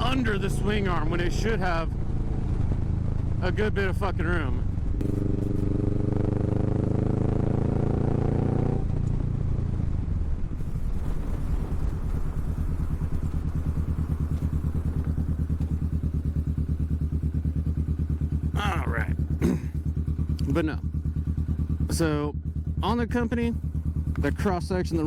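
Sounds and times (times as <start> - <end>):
motorcycle engine idling: 0.0 - 8.2, 10.6 - 25.0.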